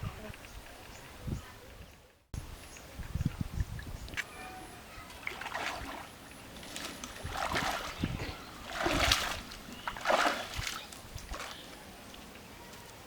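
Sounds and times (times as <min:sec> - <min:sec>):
water splashing and sloshing: 0:05.0 - 0:12.2.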